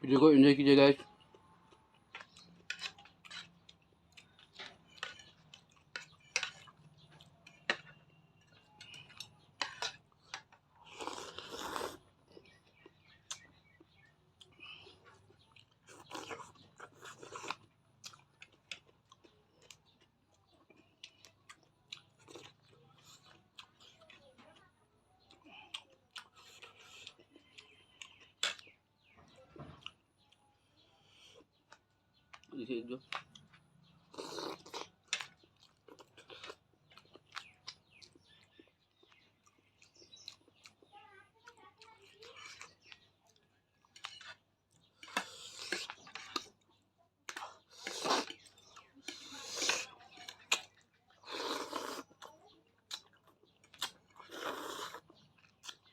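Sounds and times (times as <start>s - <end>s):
person chewing crunchy food: 1.2s - 28.8s, 29.7s - 40.9s, 41.9s - 55.9s
biting or slurping: 10.8s - 12.1s, 15.9s - 17.6s, 34.0s - 35.3s, 47.3s - 52.3s, 53.7s - 55.8s.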